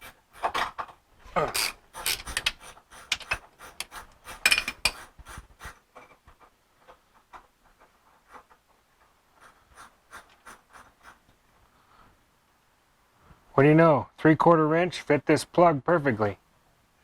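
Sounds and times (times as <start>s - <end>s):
wrench clicking on metal: 1.6s - 5.1s.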